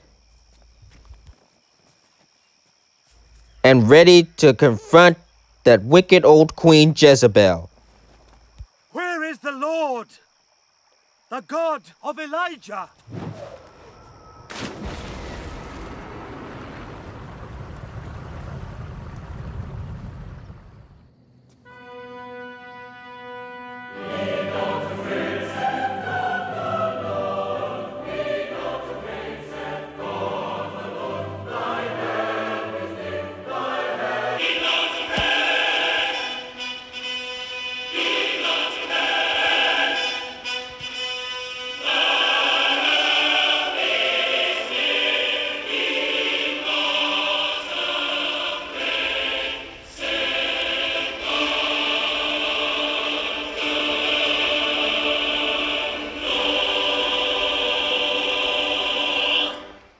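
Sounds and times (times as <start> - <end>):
orchestral accompaniment: 21.7 - 59.6
choir singing sustained notes: 21.7 - 59.9.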